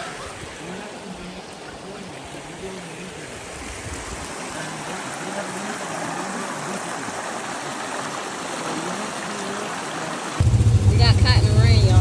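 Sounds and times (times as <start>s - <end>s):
heavy rain hissing: 10.4s - 12.0s.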